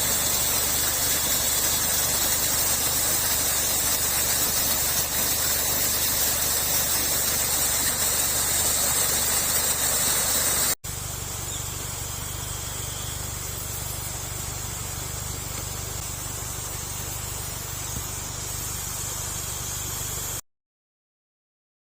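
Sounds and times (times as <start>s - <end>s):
low steady hum: 0.0s - 20.4s
waterfall rushing: 0.2s - 10.8s
night insects trilling: 11.2s - 15.5s.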